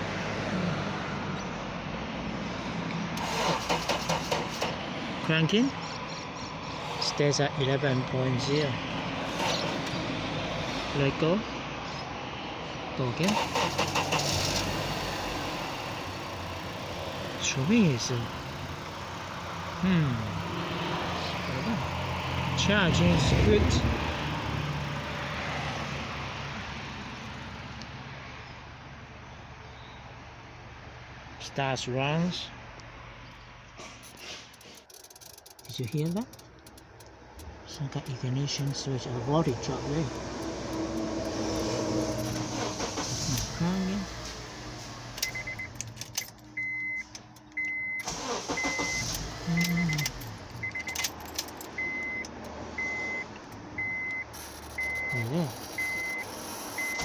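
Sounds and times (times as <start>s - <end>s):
car engine idling: 13.0s - 26.6s, 34.0s - 57.0s
keys jingling: 34.0s - 37.2s, 41.0s - 42.9s, 45.0s - 52.6s, 54.3s - 57.0s
car electronic beeps: 45.1s - 57.0s.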